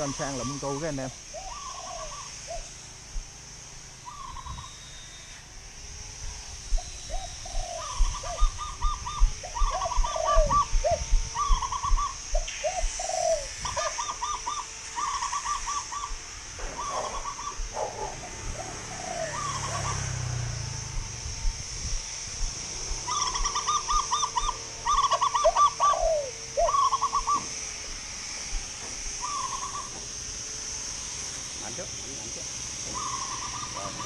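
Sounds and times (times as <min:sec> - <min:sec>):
steady high hiss: 0:00.0 - 0:34.0
dove-like coos: 0:01.3 - 0:03.0, 0:04.0 - 0:04.9, 0:06.8 - 0:20.8, 0:22.6 - 0:27.6, 0:29.2 - 0:30.1, 0:32.9 - 0:34.0
trilled bird notes: 0:06.8 - 0:20.8, 0:23.0 - 0:27.5, 0:29.2 - 0:30.0.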